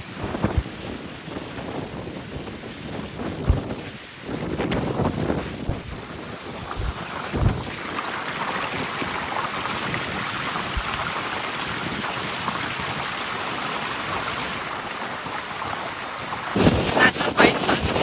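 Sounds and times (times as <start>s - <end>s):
wind buffeting microphone: 0.0s - 18.0s
wind rushing: 3.0s - 7.9s.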